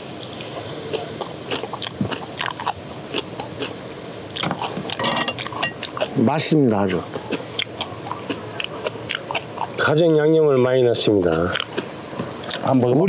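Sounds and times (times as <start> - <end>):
crunchy chewing of kimchi: 0.3 - 6.2, 7.0 - 9.9, 11.2 - 12.6.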